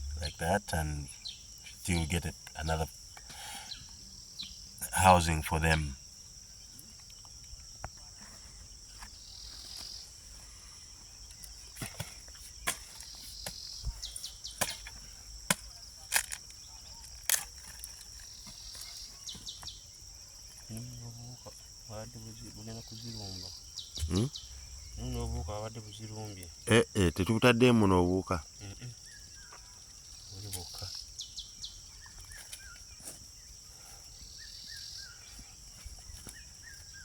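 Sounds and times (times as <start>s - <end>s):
crickets chirring: 0.0s - 37.0s
faint talk: 24.0s - 24.3s.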